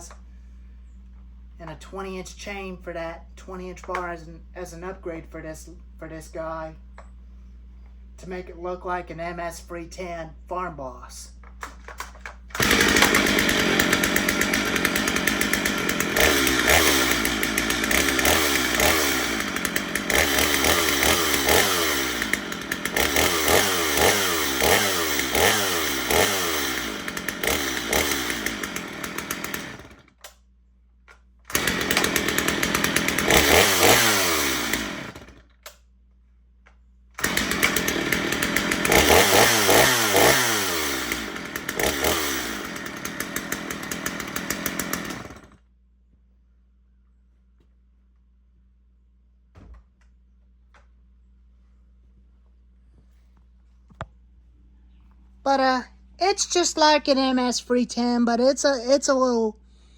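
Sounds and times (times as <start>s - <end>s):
chainsaw revving: 12.5s - 30.2s, 31.5s - 35.5s, 37.2s - 45.6s.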